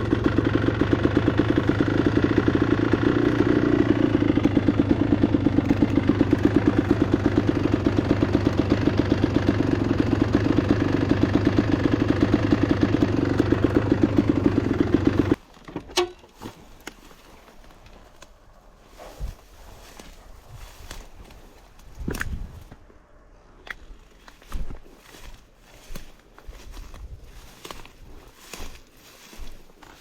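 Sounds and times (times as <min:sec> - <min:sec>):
motorcycle engine idling: 0:00.0 - 0:15.4.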